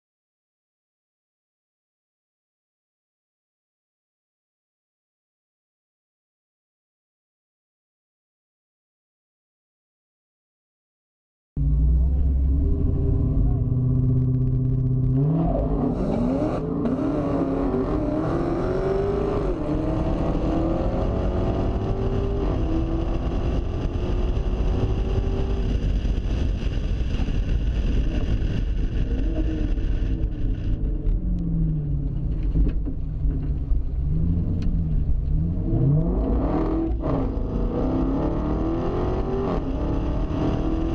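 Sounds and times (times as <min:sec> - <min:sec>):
car engine revving: 0:11.6 - 0:40.9.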